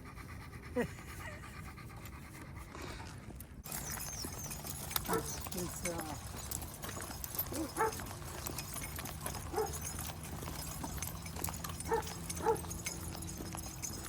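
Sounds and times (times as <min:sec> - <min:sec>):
dog paws and tags clicking: 0:03.1 - 0:14.0
dog whining: 0:03.7 - 0:05.6, 0:11.8 - 0:12.8.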